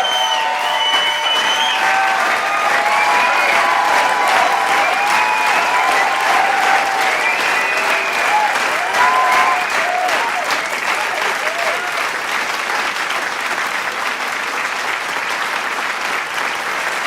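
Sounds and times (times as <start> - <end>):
shouts and whoops: 0.0 - 12.0
crowd clapping and cheering: 0.0 - 17.0.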